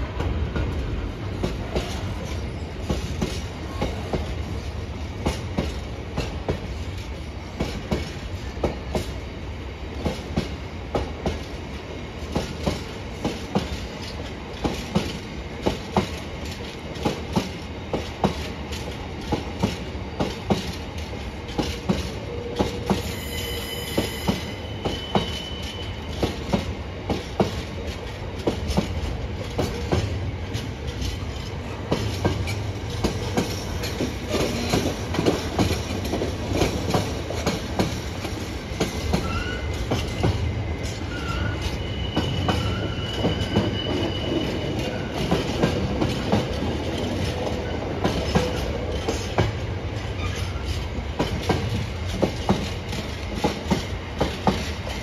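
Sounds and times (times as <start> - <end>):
low train rumble: 0.0 - 55.0
train wheels clattering over joints: 10.0 - 23.3, 23.9 - 55.0
wheel squeal: 23.0 - 26.2, 39.1 - 39.8, 41.0 - 45.3, 50.1 - 50.8.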